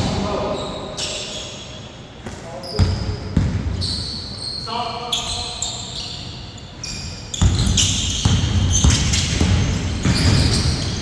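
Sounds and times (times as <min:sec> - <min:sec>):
sneakers squeaking: 0:00.0 - 0:11.0
basketball bouncing on court: 0:02.2 - 0:03.8, 0:07.3 - 0:11.0.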